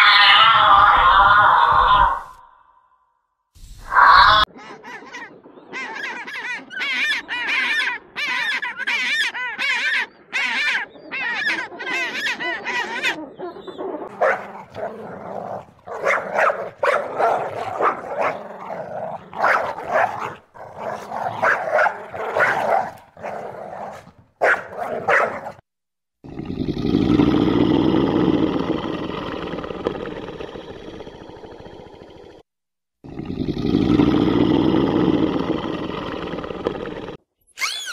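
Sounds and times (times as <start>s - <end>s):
dog barking and yelping: 5.9s - 25.6s.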